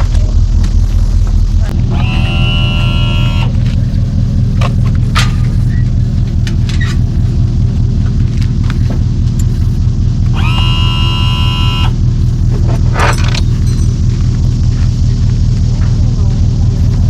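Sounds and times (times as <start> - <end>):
high-pitched tone: 0.0 - 7.8, 8.8 - 12.6
engine idling: 0.0 - 17.0.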